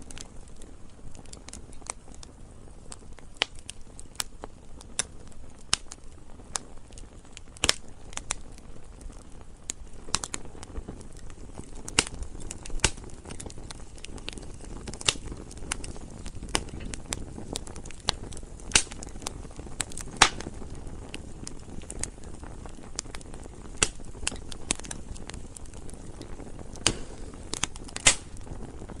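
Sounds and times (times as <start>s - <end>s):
campfire pops and crackles: 0.0s - 29.0s
low rush of flames: 0.0s - 29.0s.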